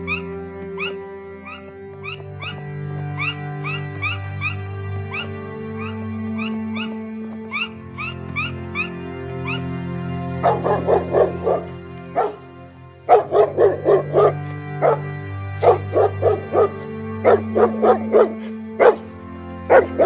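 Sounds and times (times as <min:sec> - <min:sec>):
background music: 0:00.0 - 0:20.0
dog barking: 0:10.4 - 0:12.4, 0:13.1 - 0:19.1, 0:19.7 - 0:20.0.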